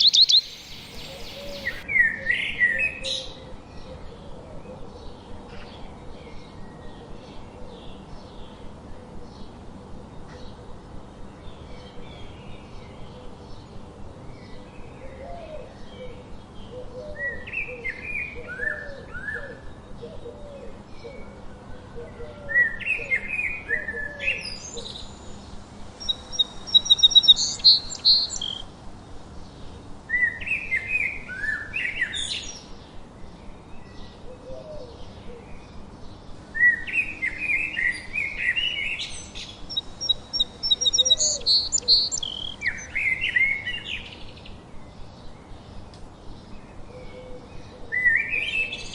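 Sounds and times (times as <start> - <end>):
bird trill: 0.0 - 1.8, 26.0 - 28.6, 38.4 - 43.4
low repeated bird notes: 0.0 - 1.8, 26.0 - 28.6, 38.2 - 43.1
songbirds singing: 0.0 - 48.9.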